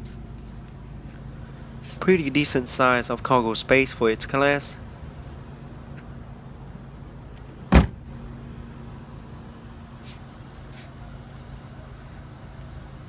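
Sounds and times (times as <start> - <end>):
steady low hum: 0.0 - 13.0
car trunk lid thump: 7.7 - 8.1.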